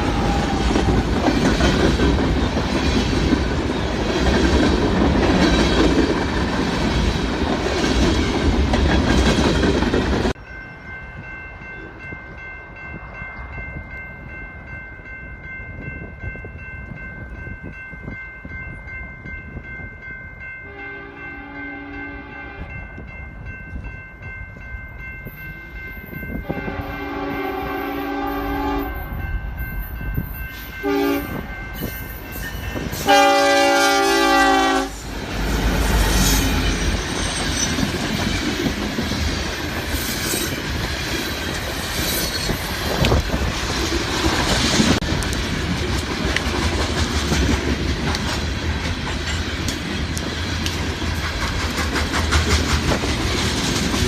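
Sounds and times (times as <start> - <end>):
locomotive air horn blasts: 20.7 - 22.7, 26.4 - 29.1, 30.8 - 31.4, 33.0 - 35.1
train wheels clicking over rail joints: 35.0 - 54.0.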